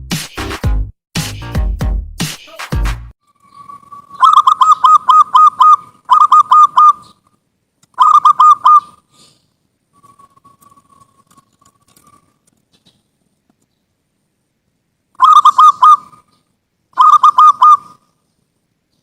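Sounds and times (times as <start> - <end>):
faint bird calls: 3.3 - 13.9, 15.2 - 19.0
dove cooing: 3.8 - 7.2, 17.0 - 18.0.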